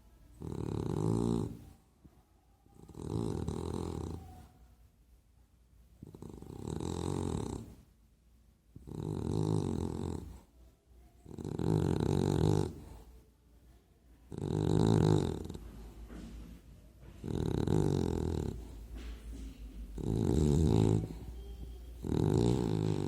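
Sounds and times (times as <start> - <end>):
dog snoring: 0.4 - 1.8, 2.8 - 4.5, 6.0 - 7.8, 8.8 - 10.5, 11.2 - 13.1, 14.3 - 16.3, 17.2 - 19.1, 19.9 - 21.4, 22.0 - 23.0.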